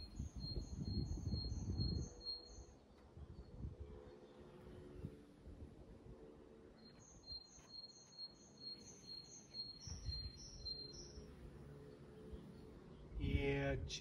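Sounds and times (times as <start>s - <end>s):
rustle: 6.7s - 11.2s.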